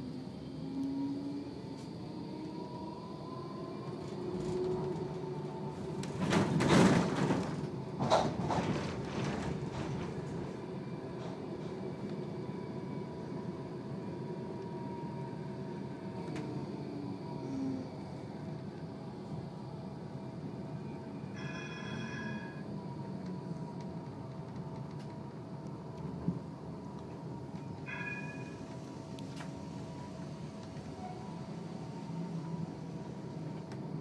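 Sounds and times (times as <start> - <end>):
tram electrical hum and whine: 0.0 - 34.0
tram doors rushing: 0.1 - 34.0
tram doors clattering shut: 4.0 - 12.0, 26.0 - 31.2.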